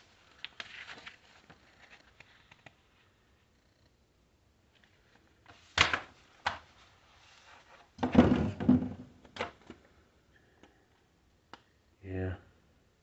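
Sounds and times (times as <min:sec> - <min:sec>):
hard objects knocking: 0:08.0 - 0:09.0.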